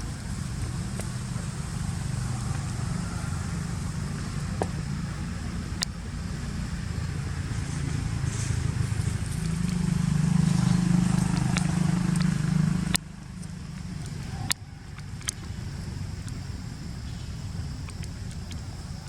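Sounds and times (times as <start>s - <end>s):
low mechanical rumble: 0.0s - 19.0s
sharp clicks: 10.6s - 15.6s.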